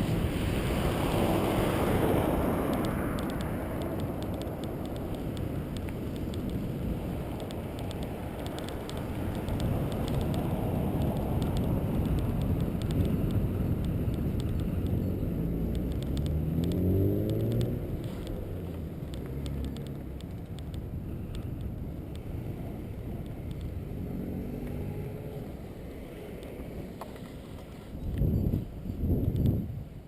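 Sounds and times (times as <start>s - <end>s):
low road rumble: 0.0s - 30.0s
vehicle engine speeding up: 14.5s - 20.7s, 22.2s - 26.7s.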